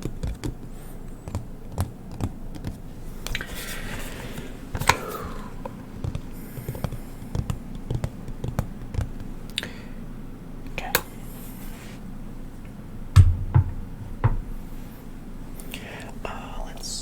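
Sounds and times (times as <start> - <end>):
hands tapping small hard objects: 1.2 - 3.5, 4.8 - 9.6.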